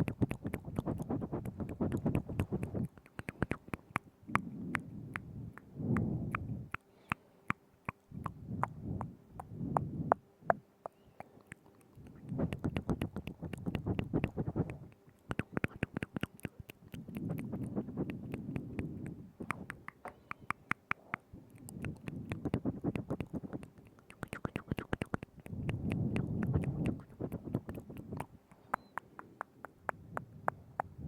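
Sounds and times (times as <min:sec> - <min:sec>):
lip smacks: 0:00.0 - 0:31.0
wet tongue clicks: 0:00.0 - 0:31.0.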